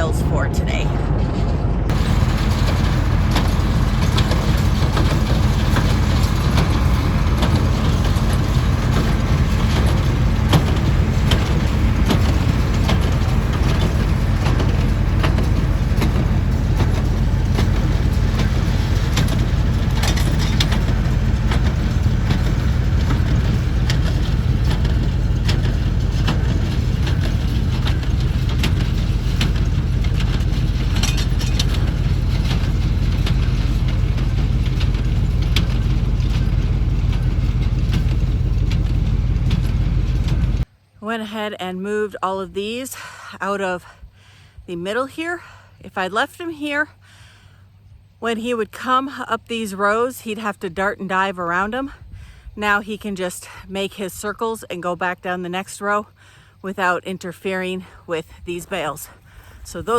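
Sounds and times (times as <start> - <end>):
vehicle engine humming: 0.0 - 40.8
small knocks and rattles: 1.4 - 40.7.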